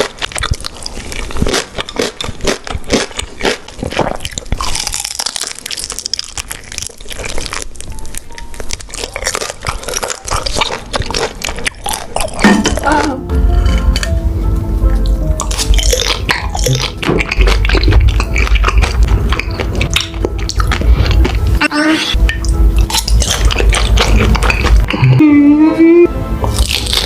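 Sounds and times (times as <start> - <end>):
crunching bites: 0.0 - 12.9, 15.4 - 21.6, 22.3 - 25.2, 26.4 - 27.0
wet chewing: 0.0 - 14.2, 15.0 - 25.3, 26.4 - 27.0
music: 5.7 - 27.0.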